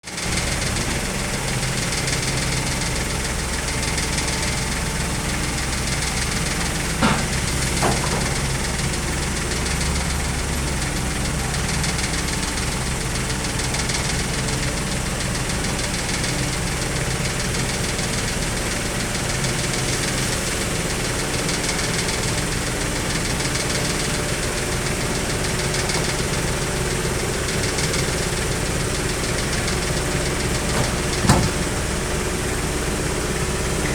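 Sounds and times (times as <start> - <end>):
diesel engine running: 0.0 - 33.9
sharp knocks: 6.9 - 8.5, 30.6 - 31.8.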